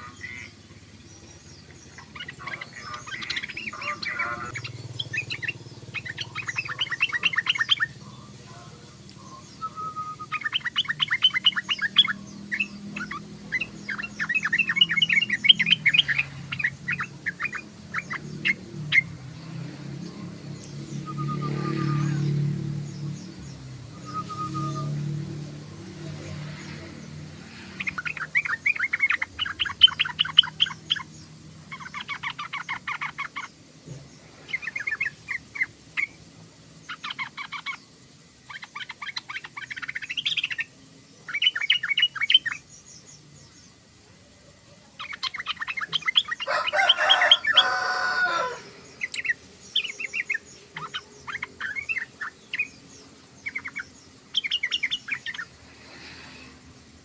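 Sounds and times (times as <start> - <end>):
bird chattering: 0.0 - 19.2, 25.9 - 33.6, 36.9 - 43.1, 45.0 - 56.2.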